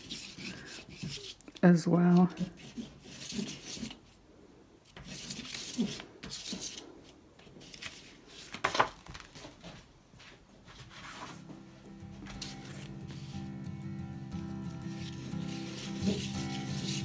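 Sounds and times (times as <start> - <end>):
pastel scraping on paper: 0.0 - 1.4, 2.2 - 4.2, 4.9 - 6.9, 12.3 - 13.5, 14.7 - 17.0
paper rustling and sliding: 4.9 - 9.8, 10.6 - 11.6, 12.2 - 13.5, 14.8 - 17.0.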